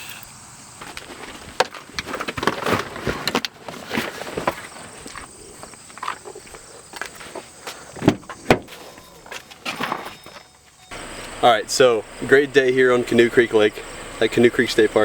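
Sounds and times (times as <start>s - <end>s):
knocks of gear being carried: 0.8s - 10.9s
footsteps: 0.8s - 11.4s.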